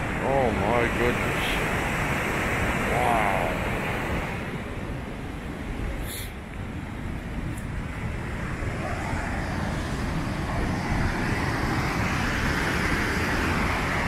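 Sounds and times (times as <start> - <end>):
waterfall rushing water: 0.1 - 4.7.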